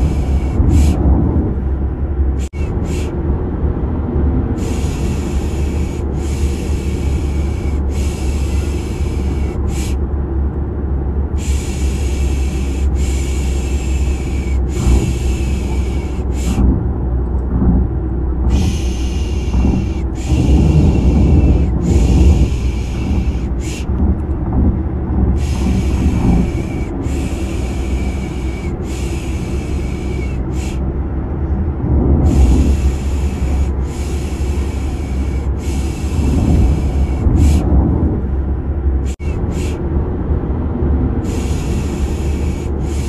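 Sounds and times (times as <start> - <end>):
car engine and road noise: 0.0 - 43.0
person shushing: 18.5 - 23.9.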